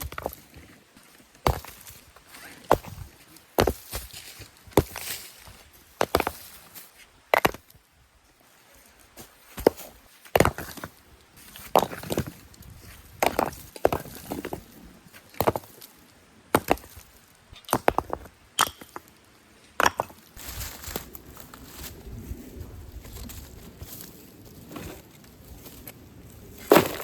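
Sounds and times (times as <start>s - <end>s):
tool scraping earth: 0.0s - 7.7s, 8.7s - 19.2s, 19.8s - 27.0s
hand tool striking stony earth: 1.4s - 1.9s, 2.6s - 5.3s, 6.0s - 6.5s, 7.3s - 7.7s, 9.6s - 10.9s, 11.6s - 12.3s, 13.2s - 14.6s, 15.2s - 15.9s, 16.5s - 17.0s, 17.6s - 19.1s, 26.5s - 27.0s.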